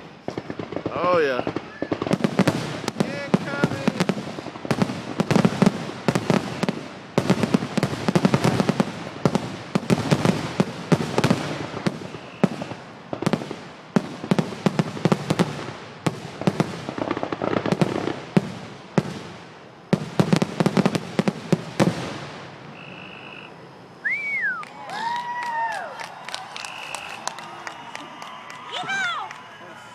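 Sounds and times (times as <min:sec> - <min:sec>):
fireworks bangs and crackling: 0:00.0 - 0:23.1, 0:24.3 - 0:29.9
high rising and falling calls: 0:22.7 - 0:29.9.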